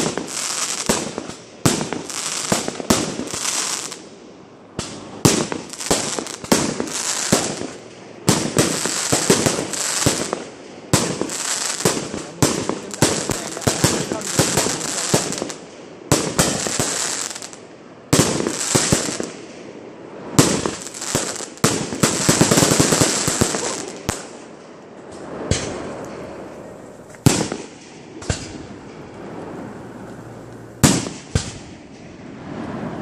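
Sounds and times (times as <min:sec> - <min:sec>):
firework crackling: 0:00.0 - 0:33.0
firework shells bursting: 0:04.8 - 0:17.6.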